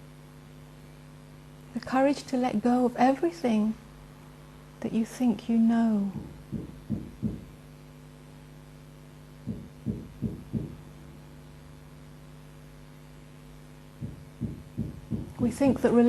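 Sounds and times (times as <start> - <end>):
low electrical hum: 0.0 - 16.0
soft low thumps: 6.1 - 7.7, 9.4 - 11.9, 13.8 - 16.0.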